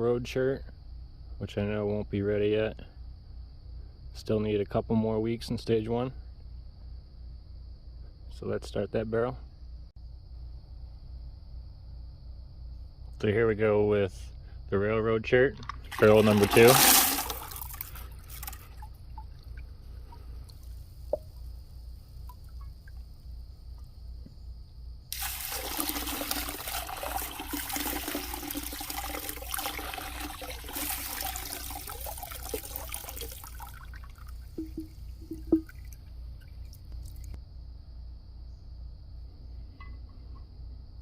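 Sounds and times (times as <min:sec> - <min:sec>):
slurry pouring from tumbler barrel: 0:15.6 - 0:20.8, 0:25.1 - 0:36.0.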